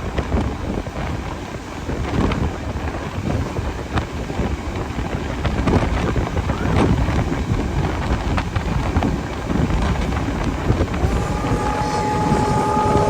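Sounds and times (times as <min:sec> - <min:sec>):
train rumbling: 0:00.0 - 0:13.0
train knocks: 0:07.9 - 0:13.0
steady multi-pitch tone: 0:11.0 - 0:13.0.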